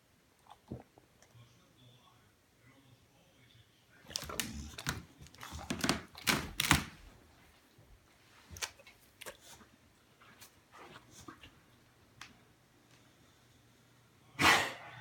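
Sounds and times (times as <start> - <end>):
dog coughing: 14.4 - 14.9.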